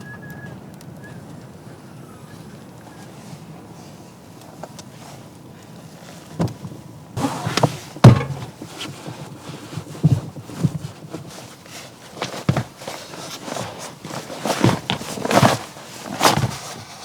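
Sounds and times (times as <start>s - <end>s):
irregular knocks and thumps: 7.2s - 8.7s.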